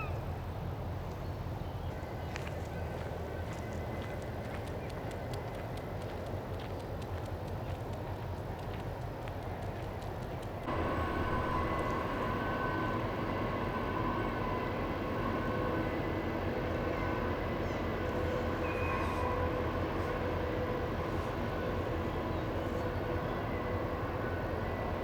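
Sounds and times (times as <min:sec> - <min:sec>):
ship engine rumble: 0:03.2 - 0:25.0
machinery whines: 0:10.7 - 0:25.0.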